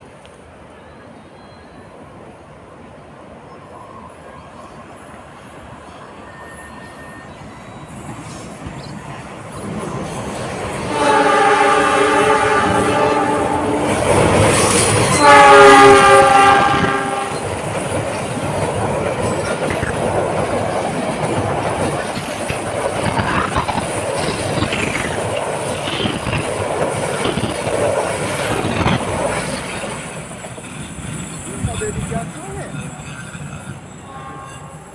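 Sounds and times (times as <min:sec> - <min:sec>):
train rumbling over bridge: 0:00.0 - 0:34.9
wheels clickety-clack: 0:05.2 - 0:34.5
train horn chord: 0:10.8 - 0:17.5, 0:34.0 - 0:34.9.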